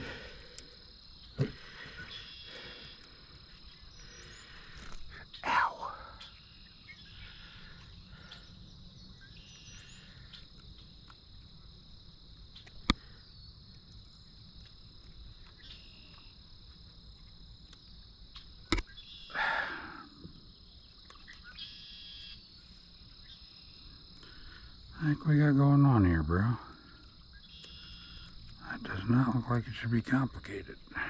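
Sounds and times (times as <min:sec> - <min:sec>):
insects trilling: 0:00.0 - 0:31.0
sharp clicks: 0:12.5 - 0:13.1.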